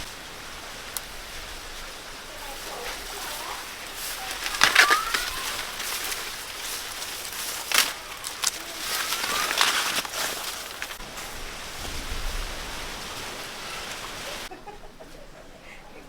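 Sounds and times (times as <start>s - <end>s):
rustling hiss: 0.0s - 16.0s
sharp snaps and cracks: 3.0s - 11.0s.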